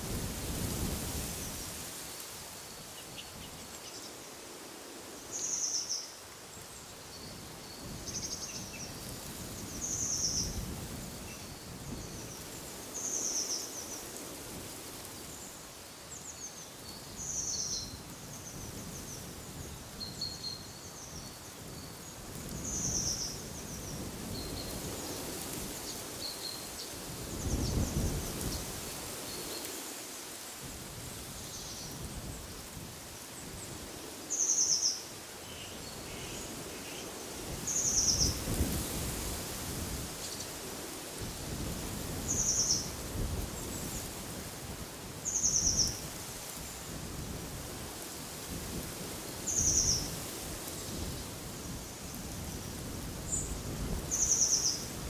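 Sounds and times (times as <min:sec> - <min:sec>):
small birds chirping: 0:53.3 - 0:54.9.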